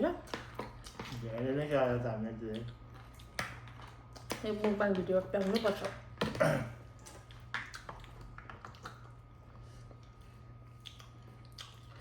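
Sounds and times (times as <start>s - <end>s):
person chewing: 2.5s - 4.4s, 6.4s - 12.0s.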